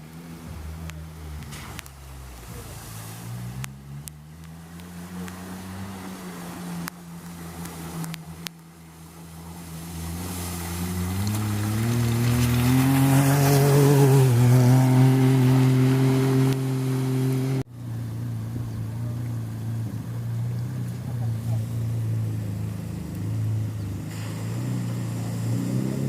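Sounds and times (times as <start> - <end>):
racing engine revving: 9.4 - 17.7, 18.5 - 26.0.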